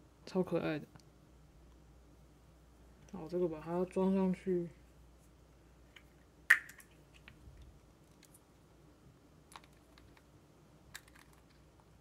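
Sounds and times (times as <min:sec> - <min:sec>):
plastic parts clicking together: 0:10.9 - 0:11.6.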